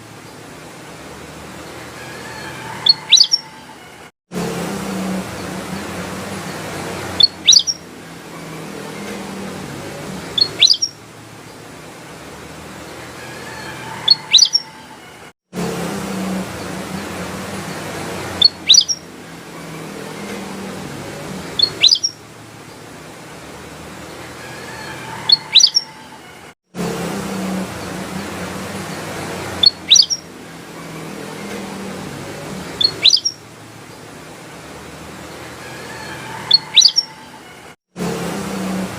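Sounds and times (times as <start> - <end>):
bulbul whistled call: 2.6 - 3.6, 7.2 - 7.8, 10.4 - 11.0, 14.0 - 14.8, 18.4 - 19.1, 21.6 - 22.2, 25.2 - 26.0, 29.6 - 30.2, 32.8 - 33.4, 36.4 - 37.2
bird calling sharp high notes: 7.2 - 7.8, 21.6 - 22.2, 29.6 - 30.2, 32.8 - 33.4.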